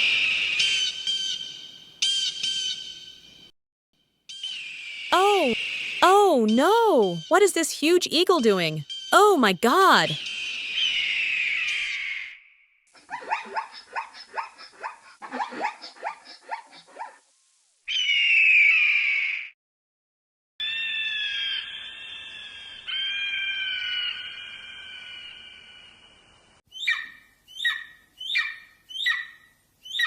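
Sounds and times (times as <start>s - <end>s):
long multi-tone animal call: 4.4s - 6.0s, 10.2s - 12.3s, 17.9s - 19.5s, 20.6s - 30.0s
loud animal screech: 17.9s - 19.5s, 20.6s - 25.4s.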